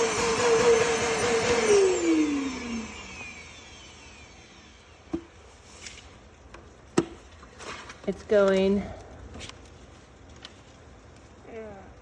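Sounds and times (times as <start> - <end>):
vacuum motor winding down: 0.0 - 5.1.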